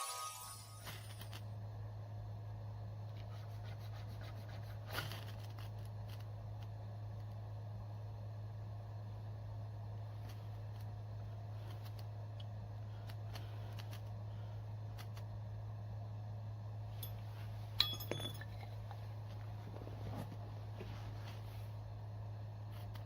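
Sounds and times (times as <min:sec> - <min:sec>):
steady low hum: 0:00.1 - 0:23.0
sharp ringing clink: 0:17.0 - 0:18.7.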